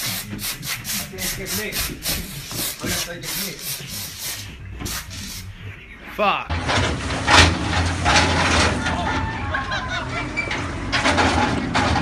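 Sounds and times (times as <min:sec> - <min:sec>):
rapid rough rubbing strokes: 0:00.0 - 0:05.5.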